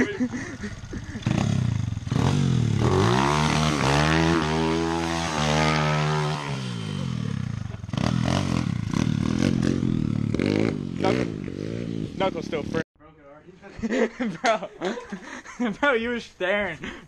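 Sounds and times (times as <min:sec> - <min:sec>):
small motorbike engine revving: 0:00.0 - 0:12.8.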